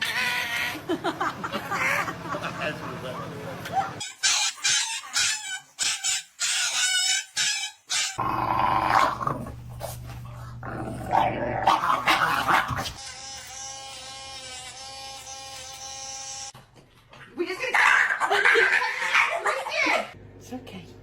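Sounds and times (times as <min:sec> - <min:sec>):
dog drawn-out cry: 0:00.0 - 0:00.9, 0:03.7 - 0:08.2.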